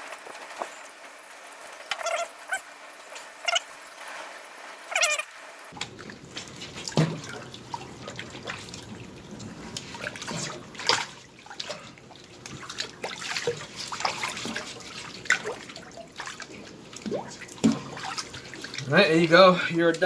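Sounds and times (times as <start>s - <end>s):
water trickling and splashing: 5.7s - 20.0s.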